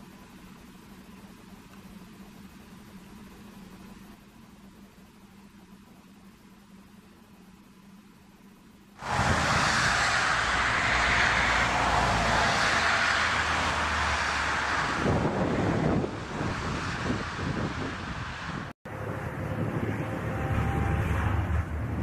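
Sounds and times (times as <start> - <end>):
jet engines running: 9.0 - 22.0
wind noise on microphone: 9.0 - 22.0.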